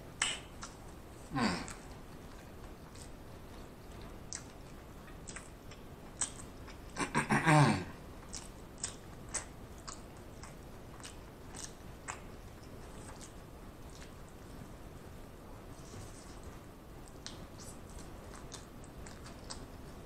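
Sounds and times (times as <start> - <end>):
wet chewing with mouth clicks: 0.2 - 7.1, 8.2 - 14.6, 15.7 - 20.0
person humming: 1.3 - 1.8, 7.0 - 8.0.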